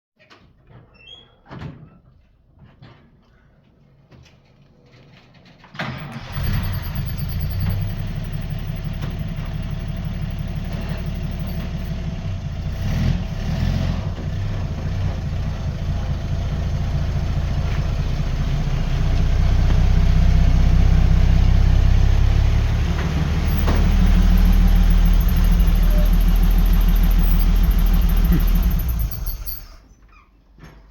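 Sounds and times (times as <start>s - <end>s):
pickup truck engine idling: 6.1s - 29.8s.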